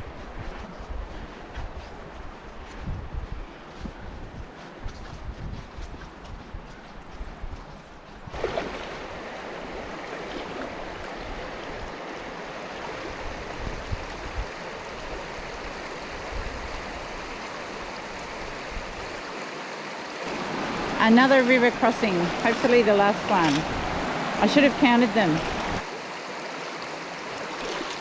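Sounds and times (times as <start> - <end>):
river water rushing over rocks: 8.4 - 28.0.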